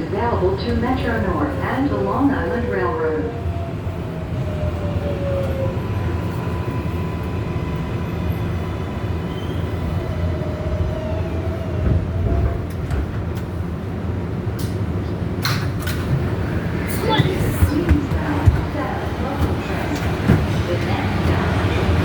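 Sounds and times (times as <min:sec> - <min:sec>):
subway car rumbling hum: 0:00.0 - 0:22.0.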